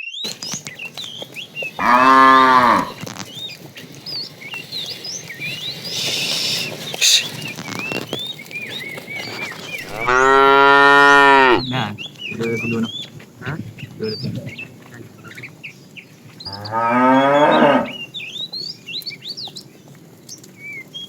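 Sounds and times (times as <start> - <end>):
cow mooing: 1.8 - 3.0, 9.8 - 14.2, 16.5 - 18.1.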